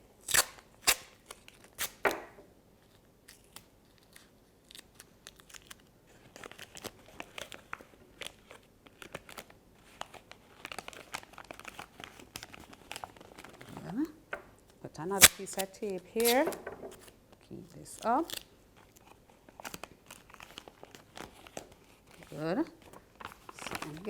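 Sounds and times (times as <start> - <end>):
paper crinkling: 2.8 - 14.1, 15.2 - 24.0
sticky tape snapping off roll: 15.2 - 16.6.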